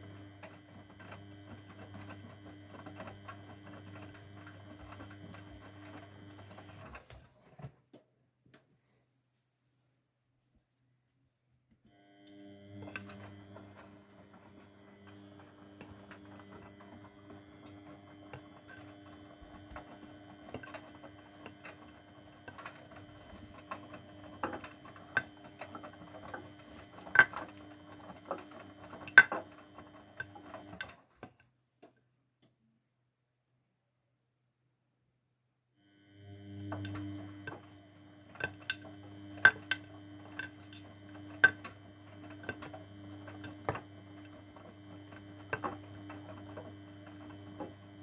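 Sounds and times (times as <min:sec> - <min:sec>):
washing machine motor humming: 0:00.0 - 0:07.2, 0:11.9 - 0:30.9, 0:35.8 - 0:48.0.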